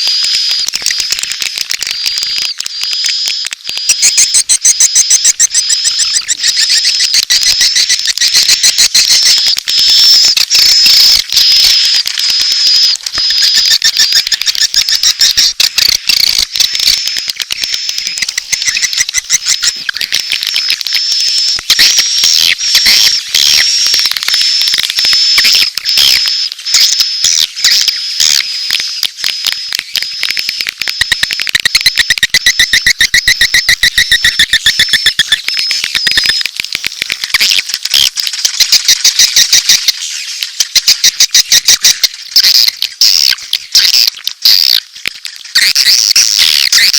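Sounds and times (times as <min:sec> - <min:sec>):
swiftlet chirps and clicks: 0:00.0 - 0:46.9.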